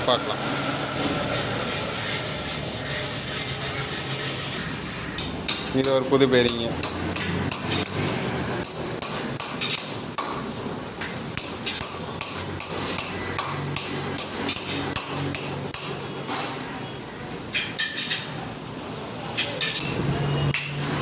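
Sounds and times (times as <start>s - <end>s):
hammer striking metal: 5.5s - 10.5s, 11.4s - 16.5s, 19.4s - 20.9s.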